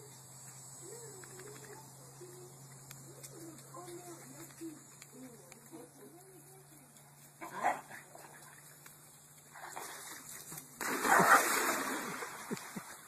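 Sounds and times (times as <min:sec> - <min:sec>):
dog splashing into pool: 0:09.5 - 0:13.0
water sloshing: 0:09.5 - 0:13.0.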